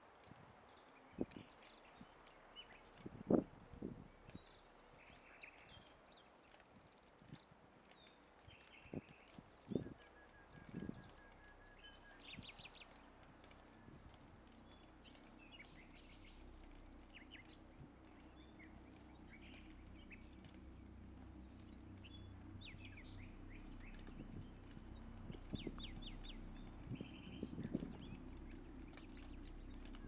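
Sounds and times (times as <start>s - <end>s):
faint bird chirps: 1.1s - 30.0s
low background rumble: 7.6s - 30.0s.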